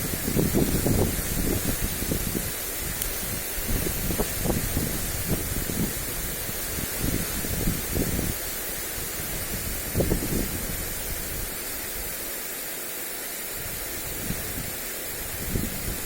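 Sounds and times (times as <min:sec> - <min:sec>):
wind buffeting microphone: 0:00.0 - 0:12.2, 0:13.5 - 0:16.0
sprinkler spraying water: 0:00.0 - 0:16.0.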